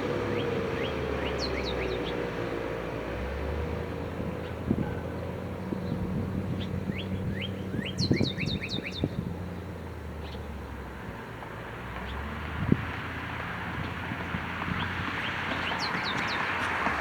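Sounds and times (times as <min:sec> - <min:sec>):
songbird chirping: 0:00.1 - 0:02.3, 0:06.6 - 0:10.6, 0:14.7 - 0:16.7.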